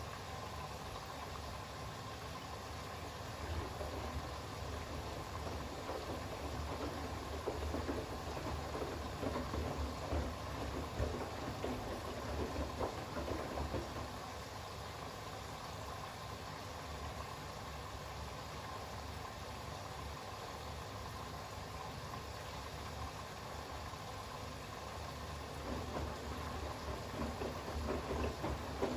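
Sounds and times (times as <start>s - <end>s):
washing machine motor hum: 0.0s - 28.9s
water sloshing in washing machine: 0.0s - 28.9s.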